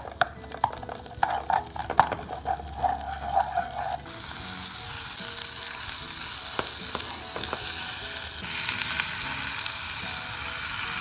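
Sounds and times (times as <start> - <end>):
garlic sizzling in butter: 0.0 - 11.0
spatula scraping a pan: 0.7 - 5.2.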